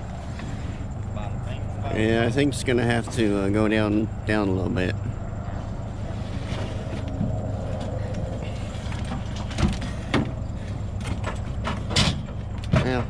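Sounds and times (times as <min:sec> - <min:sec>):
truck engine idling: 0:00.0 - 0:13.0
metal knocks in truck bed: 0:11.1 - 0:13.0.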